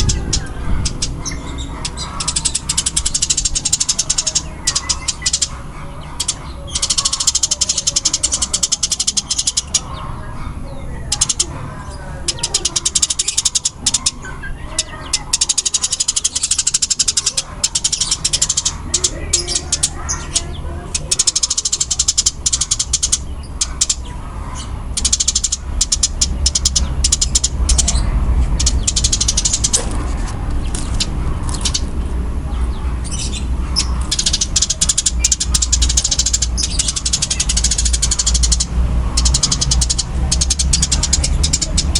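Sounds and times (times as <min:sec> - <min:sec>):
sparrows chirping: 0:00.0 - 0:41.9.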